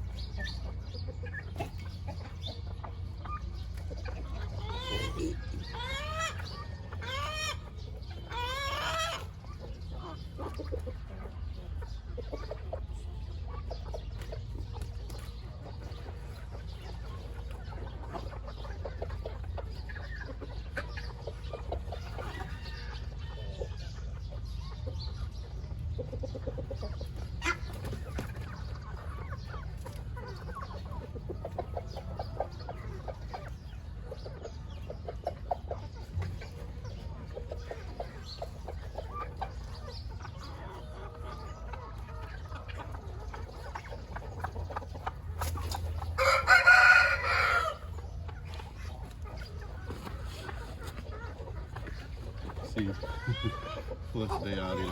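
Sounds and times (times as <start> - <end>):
chickens clucking: 0.0 - 54.9
chicken drawn-out call: 3.2 - 11.4, 27.3 - 54.9.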